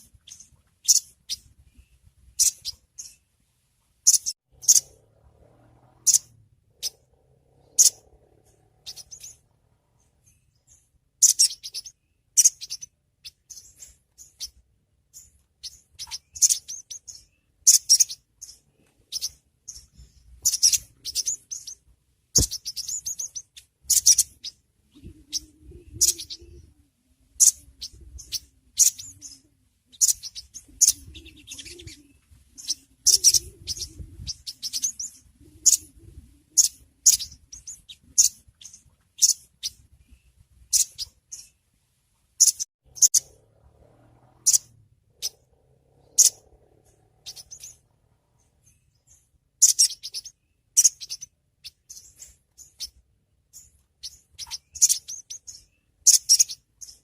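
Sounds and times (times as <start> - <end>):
bird giving high sharp chirps: 2.4 - 3.2, 4.0 - 5.1, 6.0 - 14.6, 15.2 - 21.8, 22.4 - 26.7, 27.4 - 36.0, 40.7 - 41.5, 44.4 - 57.0.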